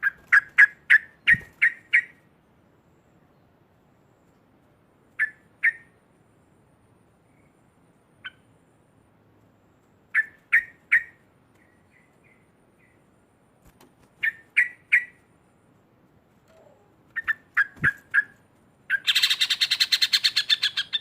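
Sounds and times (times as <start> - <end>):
bird calling sharp notes: 16.5 - 21.0.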